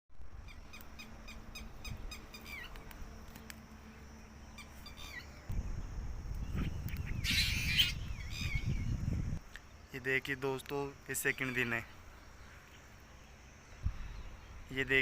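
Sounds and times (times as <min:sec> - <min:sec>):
birds chirping: 0:00.3 - 0:15.0
low rumbling noise: 0:05.2 - 0:09.4.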